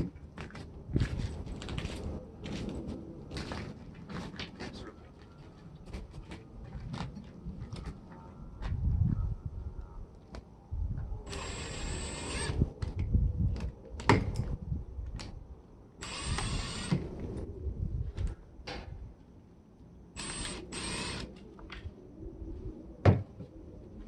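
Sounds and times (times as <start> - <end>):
short whirring bursts: 11.3 - 12.7, 16.0 - 17.1, 20.2 - 21.3.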